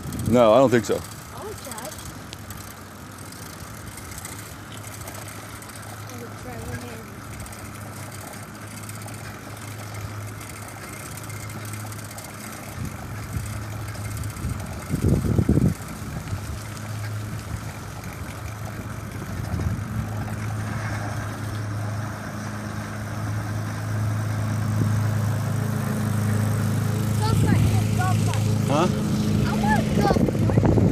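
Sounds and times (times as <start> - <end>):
road noise: 0.0 - 30.9
vehicle engine running: 0.0 - 30.9
wind: 0.0 - 30.9.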